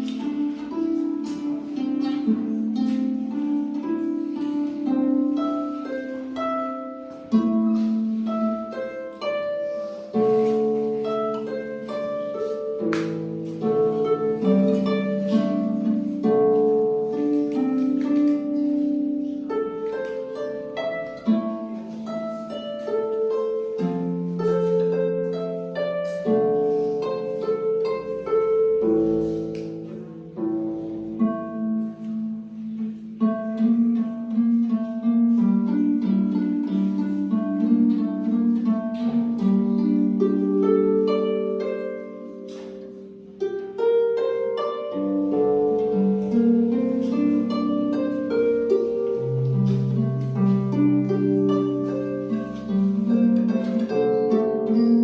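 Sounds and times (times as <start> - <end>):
harp playing folk tune: 0.0 - 55.0.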